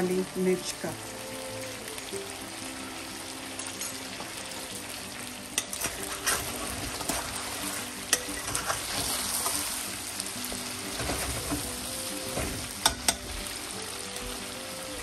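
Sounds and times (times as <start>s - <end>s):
chicken sizzling in oil: 0.0s - 15.0s
spoon clinking against pan: 5.6s - 6.4s, 8.1s - 9.6s, 12.8s - 13.4s
spoon stirring and scraping: 5.6s - 9.9s.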